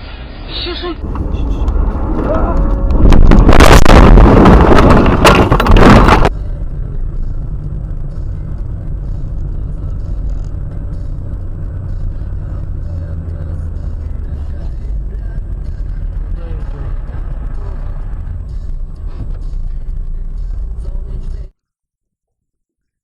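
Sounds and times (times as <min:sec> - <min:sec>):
road and engine rumble: 0:00.0 - 0:21.5
car collision crunching: 0:02.9 - 0:06.3.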